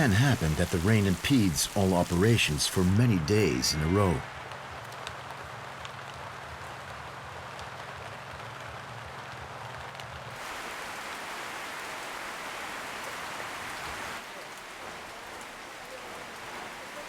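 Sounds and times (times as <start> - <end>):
drops ticking: 0.0 - 4.2
rain falling: 0.0 - 17.0.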